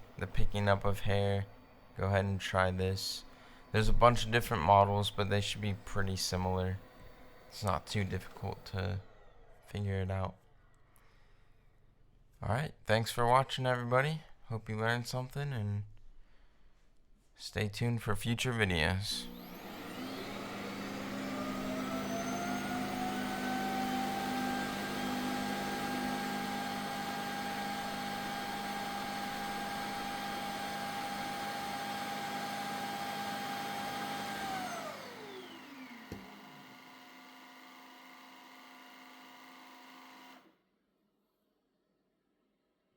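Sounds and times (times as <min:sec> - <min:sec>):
robot vacuum motor whining: 0:03.6 - 0:09.7, 0:19.1 - 0:40.5
click: 0:36.0 - 0:36.4.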